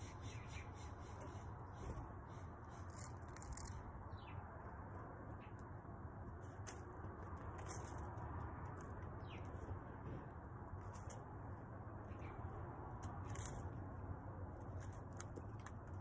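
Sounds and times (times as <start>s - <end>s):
faint high bird chirps: 0.0s - 4.4s
low background hum: 0.0s - 16.0s
soft rustles and ticks: 6.4s - 11.3s.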